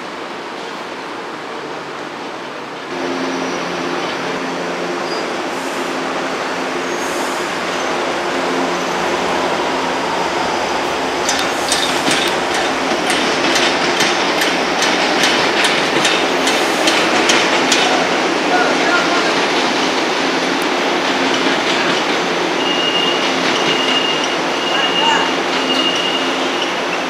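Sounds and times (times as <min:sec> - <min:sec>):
electric train running: 0:03.0 - 0:27.0
train wheels clicking over rail joints: 0:11.0 - 0:18.0, 0:19.9 - 0:24.4.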